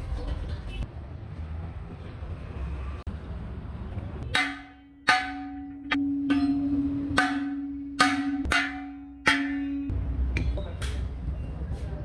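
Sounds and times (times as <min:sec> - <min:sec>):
hammer striking metal wheel rim: 0:04.3 - 0:11.1.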